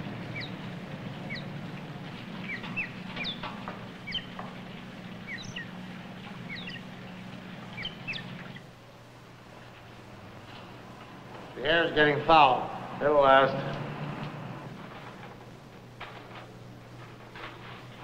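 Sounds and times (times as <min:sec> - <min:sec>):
low steady hum: 0:00.0 - 0:18.0
small bird chirping: 0:00.2 - 0:01.6, 0:02.2 - 0:08.7.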